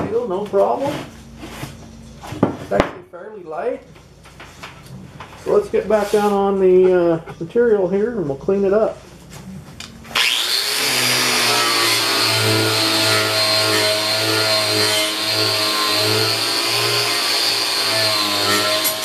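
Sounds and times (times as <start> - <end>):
angle grinder stripping paint: 10.1 - 19.0.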